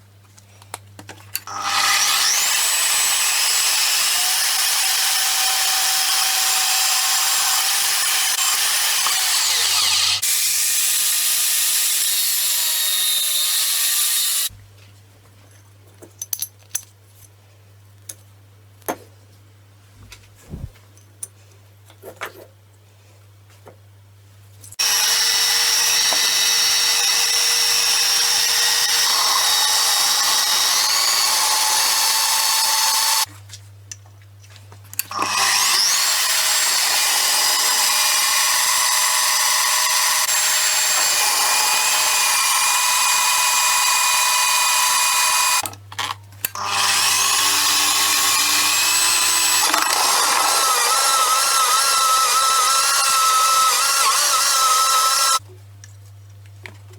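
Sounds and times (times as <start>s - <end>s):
power tool motor whining: 1.5s - 14.5s, 24.8s - 33.3s, 35.1s - 45.6s, 46.6s - 55.4s.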